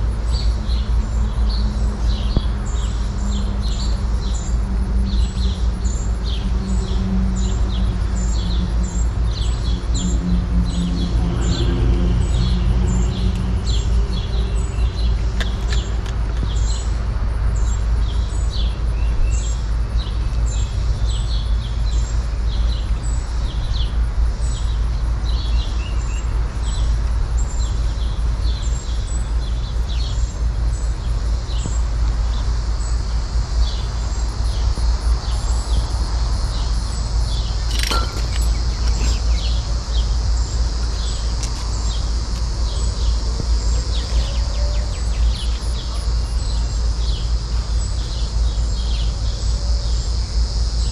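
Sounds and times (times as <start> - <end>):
steady low rumble: 0.0 - 50.8
birds chirping: 33.7 - 49.6
sharp click: 37.7 - 39.2.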